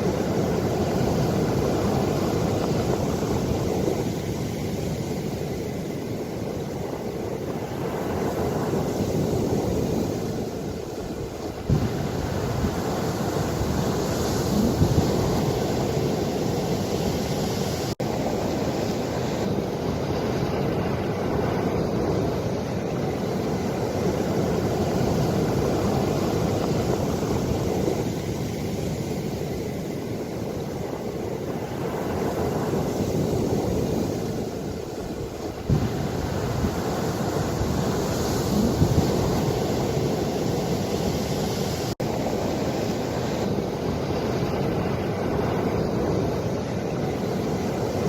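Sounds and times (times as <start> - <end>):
ocean waves surging: 0.0 - 48.0
wind on microphone: 0.0 - 48.0.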